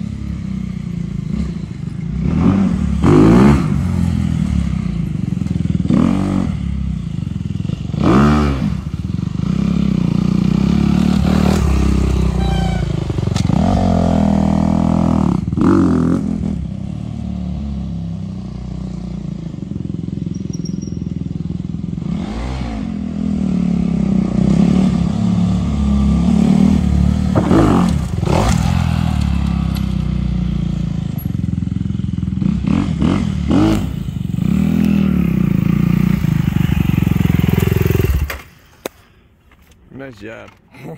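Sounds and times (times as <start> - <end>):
dirt bike engine revving: 2.2 - 4.8, 7.7 - 18.7, 21.9 - 30.9, 32.1 - 38.5.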